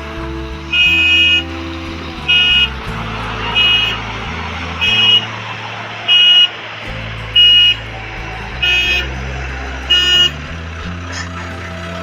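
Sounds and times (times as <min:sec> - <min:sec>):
background music: 0:00.0 - 0:12.0
reversing alarm beeping: 0:00.7 - 0:10.4.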